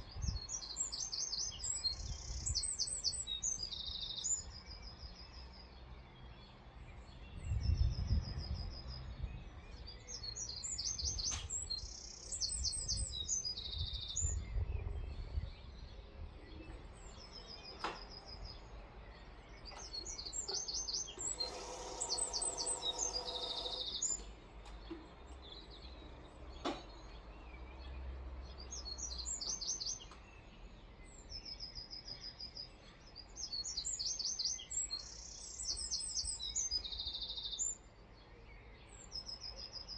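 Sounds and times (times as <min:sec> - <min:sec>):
songbirds chirping: 0:00.0 - 0:39.9
brief hiss: 0:21.2 - 0:24.3.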